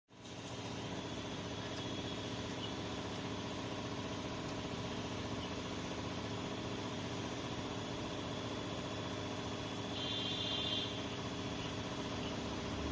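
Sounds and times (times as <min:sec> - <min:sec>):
motor humming with high whine: 0:00.1 - 0:12.9.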